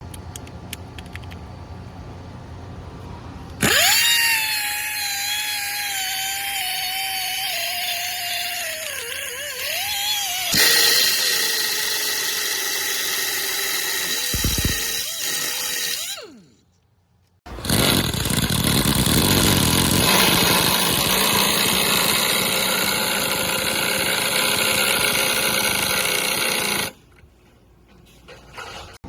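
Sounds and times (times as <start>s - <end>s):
pneumatic impact driver whining: 3.6s - 16.6s, 17.5s - 27.0s.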